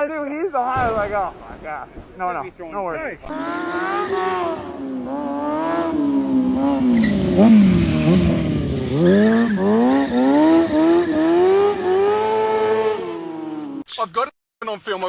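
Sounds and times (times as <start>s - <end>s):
vehicle engine revving: 3.3s - 13.8s.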